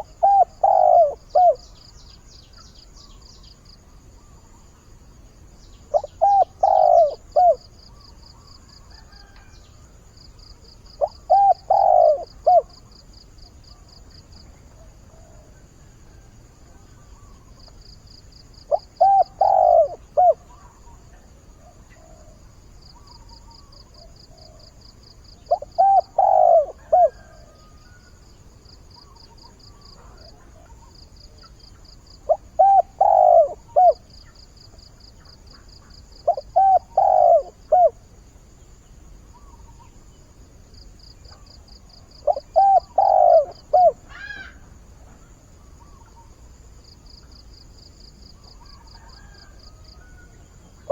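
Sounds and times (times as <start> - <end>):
dove cooing: 0.0 - 1.8, 5.9 - 9.6, 10.8 - 13.0, 18.6 - 21.0, 25.4 - 28.0, 32.2 - 34.3, 35.2 - 38.1, 41.3 - 44.6, 48.5 - 50.9
pulsing insect trill: 17.0 - 21.1, 22.8 - 44.9.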